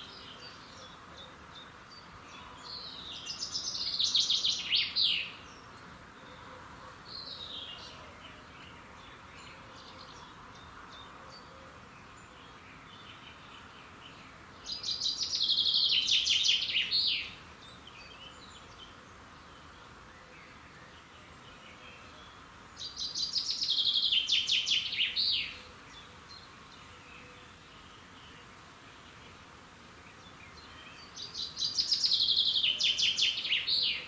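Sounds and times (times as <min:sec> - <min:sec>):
songbird trilling song: 0:00.0 - 0:05.8, 0:12.2 - 0:26.8, 0:30.1 - 0:34.0
faint background hiss: 0:00.0 - 0:34.0.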